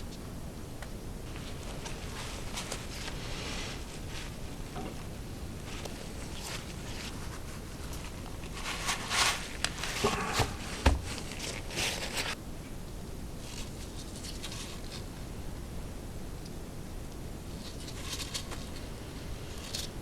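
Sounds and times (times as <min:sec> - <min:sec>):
paper filter crinkling: 0:01.2 - 0:12.4, 0:17.5 - 0:20.0.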